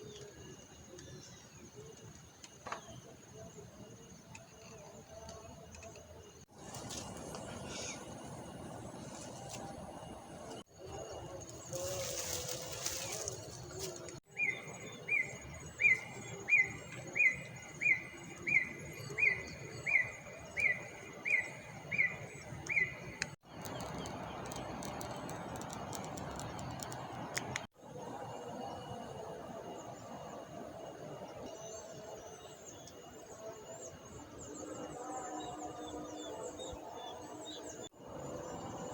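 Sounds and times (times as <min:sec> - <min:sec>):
steady outdoor hiss: 0:00.0 - 0:38.9
faint bird calls: 0:06.9 - 0:08.4
faint clicks: 0:22.6 - 0:27.7.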